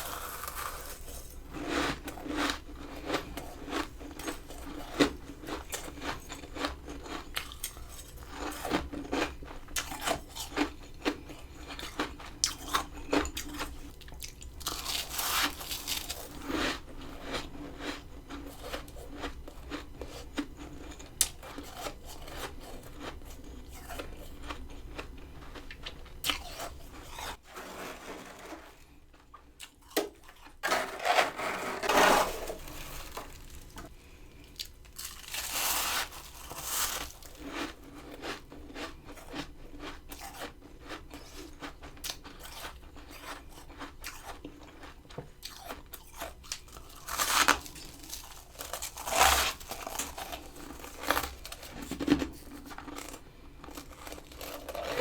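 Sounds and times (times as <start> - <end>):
ice crunching: 26.4 - 29.0, 30.3 - 33.9.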